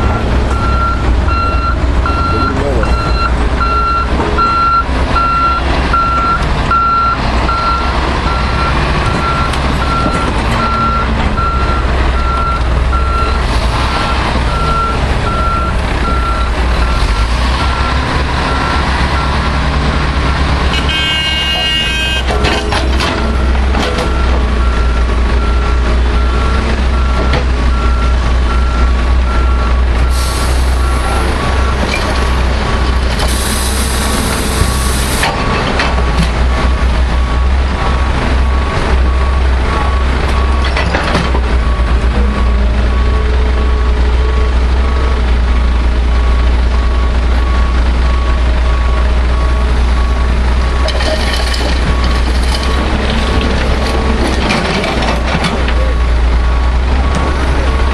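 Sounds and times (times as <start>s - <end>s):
truck reversing alarm beeping: 0.0s - 19.6s, 20.2s - 22.4s, 23.0s - 32.0s, 46.1s - 55.2s
diesel engines running: 0.0s - 57.9s.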